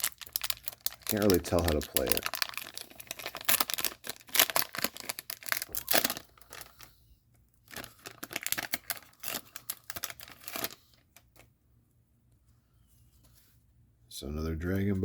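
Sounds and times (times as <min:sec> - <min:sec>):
cards rustling: 0:00.0 - 0:06.9, 0:07.7 - 0:11.4
plastic wrapper crinkling: 0:00.0 - 0:06.9, 0:07.6 - 0:11.5.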